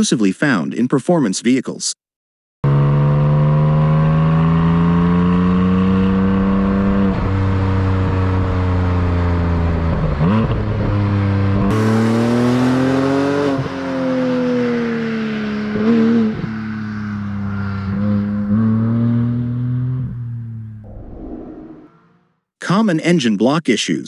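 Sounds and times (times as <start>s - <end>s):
car engine accelerating: 2.6s - 22.4s
engine throttle blips: 15.0s - 22.4s.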